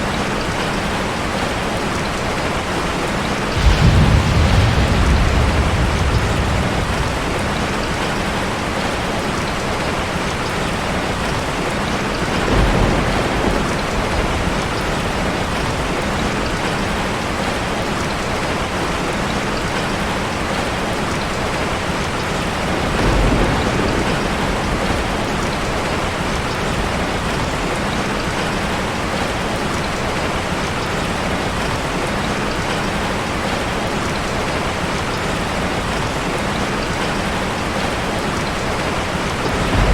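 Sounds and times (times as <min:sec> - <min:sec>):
waterfall rushing: 0:00.0 - 0:39.9
low rumbling swells: 0:03.6 - 0:08.8.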